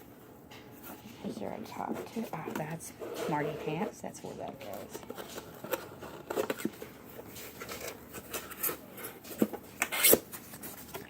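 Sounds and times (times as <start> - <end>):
plastic clicks and rustles: 4.6 - 11.0.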